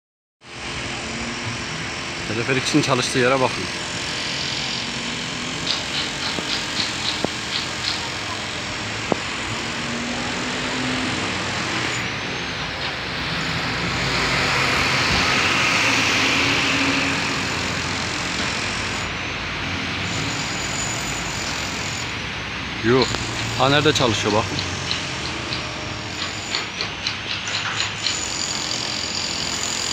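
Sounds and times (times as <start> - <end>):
street traffic noise: 0.4 - 29.9
vehicle passing by: 9.7 - 17.5, 22.6 - 26.1.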